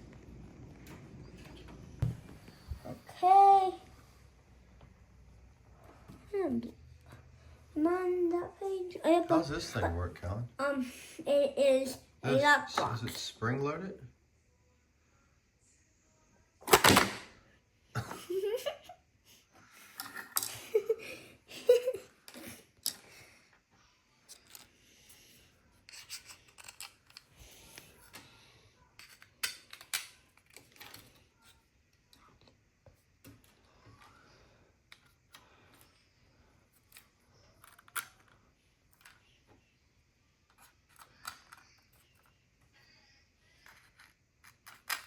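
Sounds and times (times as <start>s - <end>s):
plastic parts clicking and snapping: 25.9s - 27.4s.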